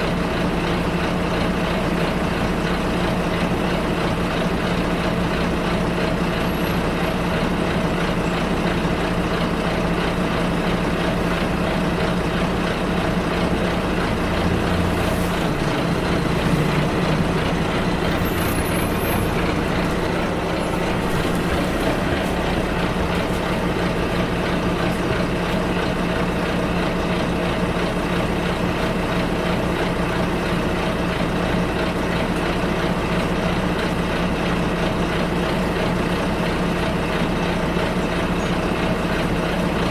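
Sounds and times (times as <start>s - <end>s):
bus engine hum and road noise: 0.0s - 39.9s.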